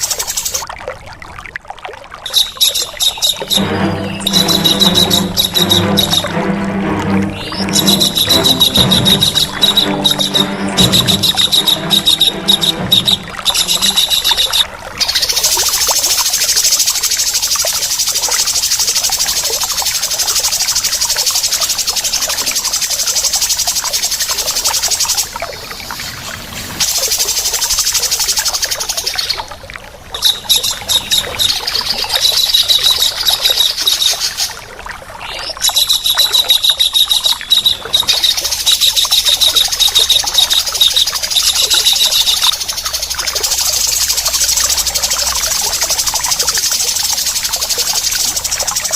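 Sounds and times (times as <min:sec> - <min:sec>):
bulbul calling: 0:00.0 - 0:00.6, 0:02.2 - 0:29.5, 0:30.1 - 0:34.6, 0:35.3 - 0:48.9
kingfisher chattering calls: 0:02.3 - 0:06.4, 0:07.3 - 0:17.2, 0:35.6 - 0:48.9.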